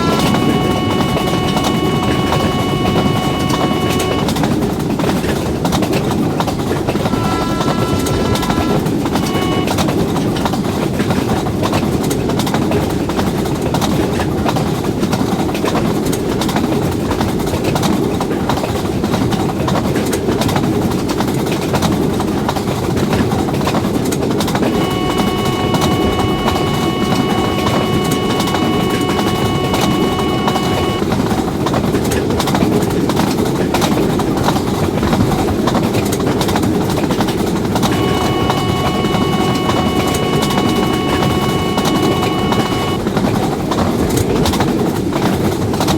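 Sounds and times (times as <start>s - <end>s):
multi-note horn tone: 0.0s - 4.3s, 7.0s - 9.8s, 24.7s - 31.0s, 37.9s - 43.0s.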